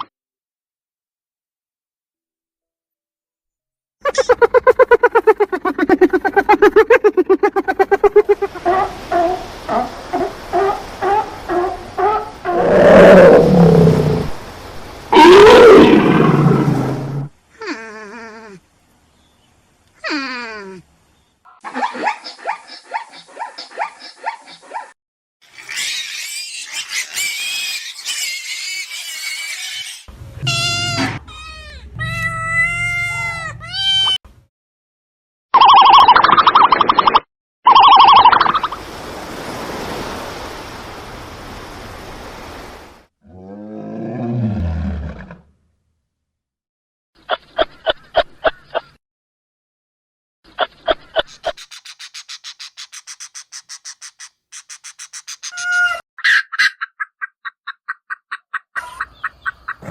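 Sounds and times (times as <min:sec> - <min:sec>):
chorus of high animal calls: 0:25.5 - 0:33.6, 0:55.4 - 0:56.7.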